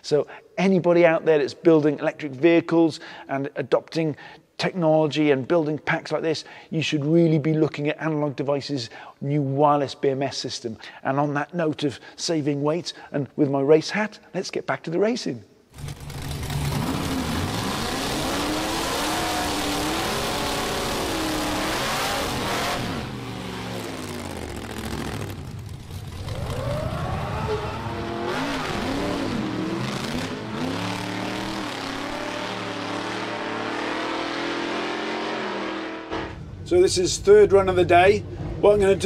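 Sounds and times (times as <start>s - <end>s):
car engine revving: 15.8s - 36.6s.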